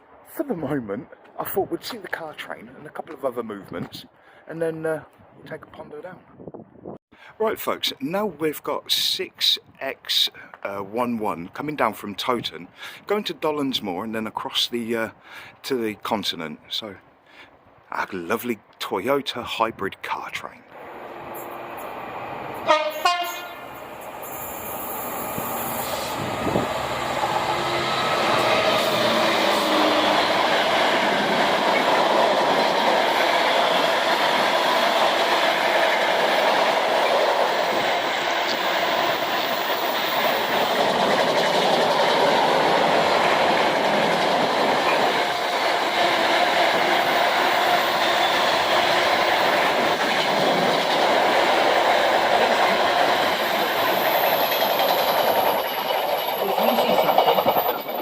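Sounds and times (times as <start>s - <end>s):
freight train rumbling past: 20.8s - 58.0s
train horn blasts: 22.6s - 23.8s
wheels clicking over rail joints: 28.1s - 58.0s.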